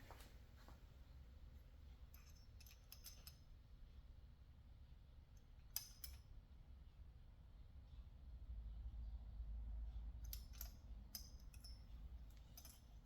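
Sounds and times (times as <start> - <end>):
faint clicks and clinks: 2.1 - 3.5, 5.7 - 6.3, 10.2 - 13.0.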